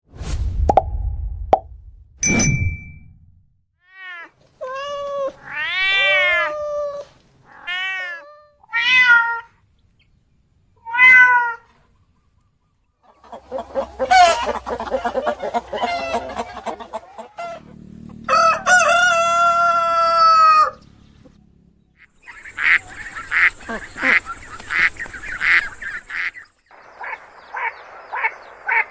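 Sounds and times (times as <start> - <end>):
kitten meowing: 3.9 - 9.5
chicken calls: 11.6 - 21.4, 22.0 - 28.9
rooster crowing: 13.2 - 20.8.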